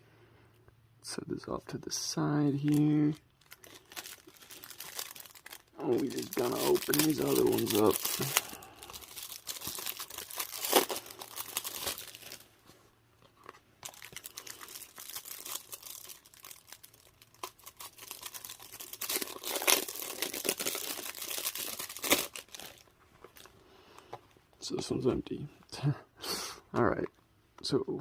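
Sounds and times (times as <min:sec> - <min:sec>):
packaging crinkling and tearing: 0:02.5 - 0:12.5, 0:13.4 - 0:23.6.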